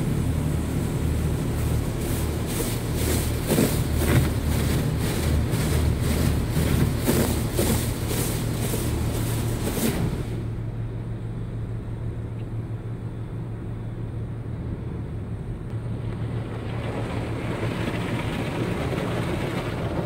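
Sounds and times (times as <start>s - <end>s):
high-pressure water spraying: 0.0s - 10.4s
low machine hum: 0.0s - 20.0s.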